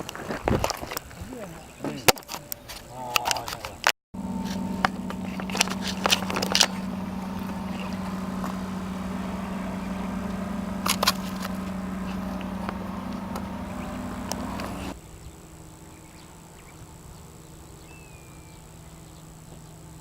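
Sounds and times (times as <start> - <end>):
low engine hum: 4.2 - 15.0.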